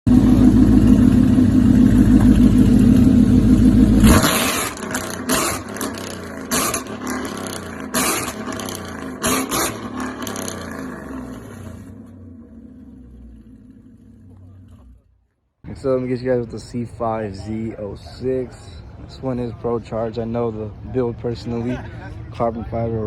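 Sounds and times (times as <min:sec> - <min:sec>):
sharp exhaust bursts: 0:00.1 - 0:15.0
car engine revving: 0:00.1 - 0:15.2.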